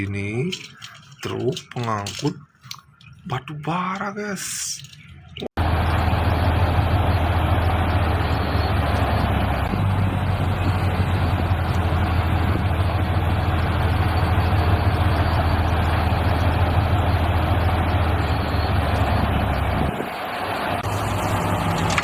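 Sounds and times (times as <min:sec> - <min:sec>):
truck engine idling: 0:05.6 - 0:22.0.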